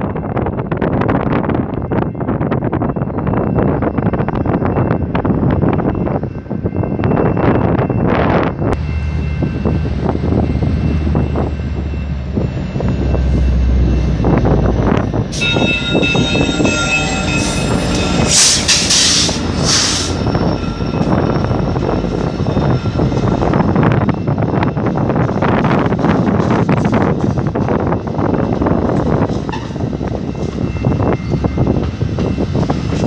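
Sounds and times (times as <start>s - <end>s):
train rumbling past: 0.2s - 33.0s
high squealing tones: 12.4s - 24.1s
loud hissing: 17.3s - 20.3s.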